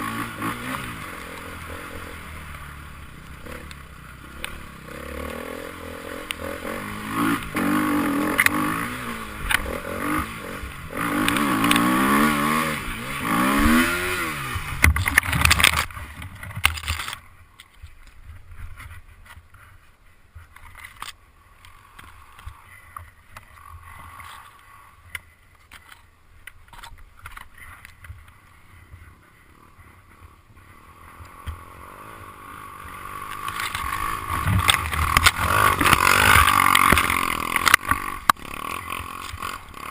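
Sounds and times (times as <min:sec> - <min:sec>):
motorcycle engine revving: 0:00.0 - 0:17.1, 0:29.5 - 0:39.9
motorcycle approaching: 0:00.0 - 0:17.3, 0:21.5 - 0:25.9, 0:27.6 - 0:39.9
scattered clicks: 0:14.8 - 0:18.2, 0:33.2 - 0:39.9.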